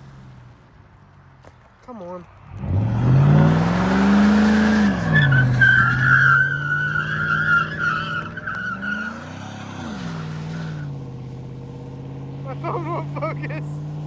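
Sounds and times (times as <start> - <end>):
truck engine revving: 2.5 - 14.0
tyres squealing: 4.4 - 10.8.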